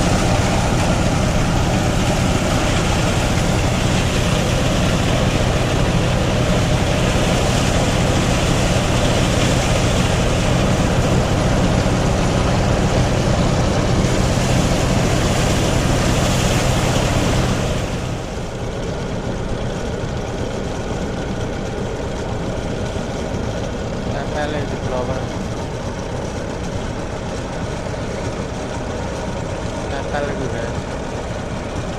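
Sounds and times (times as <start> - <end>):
dense rushing noise: 0.0 - 18.7
threshing machine engine hum: 0.0 - 31.9.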